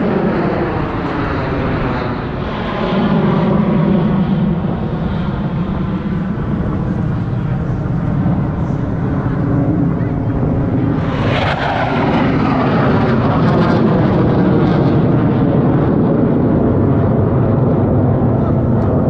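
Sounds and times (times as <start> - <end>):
fighter jets roaring past: 0.0 - 19.0.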